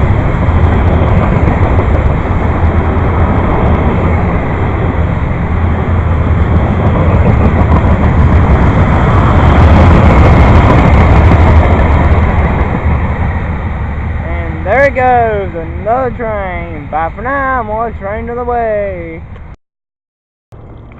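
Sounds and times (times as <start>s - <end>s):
train wheels on rails: 0.0s - 14.2s.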